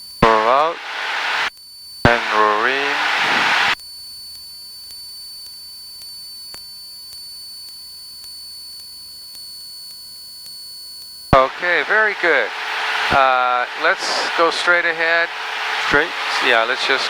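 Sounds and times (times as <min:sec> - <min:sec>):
high electronic whine: 0:00.2 - 0:01.5, 0:02.1 - 0:03.8, 0:11.4 - 0:17.0
intercom click: 0:00.2 - 0:01.5, 0:02.1 - 0:03.8, 0:11.4 - 0:17.0
open-mic cabin noise: 0:00.2 - 0:01.5, 0:02.1 - 0:03.8, 0:11.4 - 0:17.0
faint low hum: 0:11.4 - 0:17.0.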